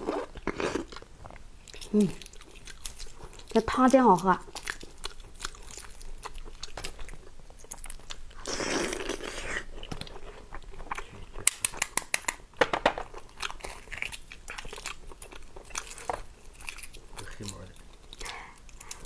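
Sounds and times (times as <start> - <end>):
person chewing: 0.0 - 12.4, 13.1 - 19.0
eggshell cracking and peeling: 11.4 - 17.4.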